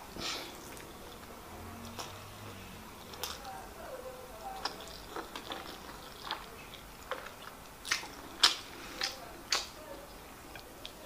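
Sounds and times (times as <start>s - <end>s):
close-up chewing: 4.5s - 9.8s
wet mouth clicks and smacks: 7.9s - 9.7s.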